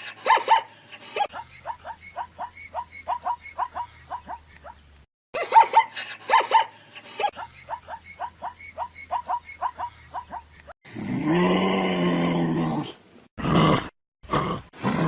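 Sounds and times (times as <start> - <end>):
animal yipping calls: 1.3 - 4.8, 7.7 - 10.7
animal groaning call: 10.9 - 15.0.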